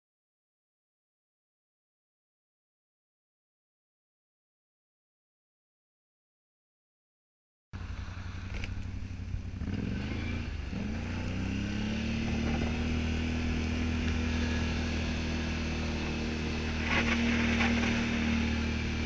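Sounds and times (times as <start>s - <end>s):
atv engine revving: 7.8s - 19.0s.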